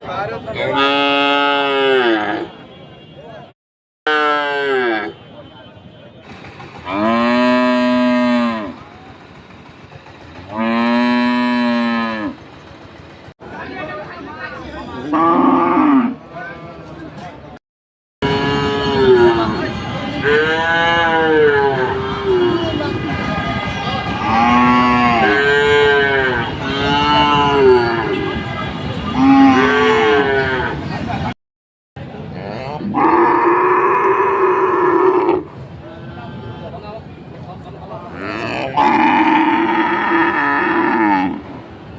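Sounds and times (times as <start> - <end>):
cow mooing: 0.7 - 2.5, 4.1 - 5.1, 6.9 - 8.8, 10.5 - 12.4, 15.1 - 16.2, 18.2 - 19.4, 20.2 - 22.7, 24.2 - 28.2, 29.2 - 30.8, 32.4 - 35.5, 38.2 - 41.5.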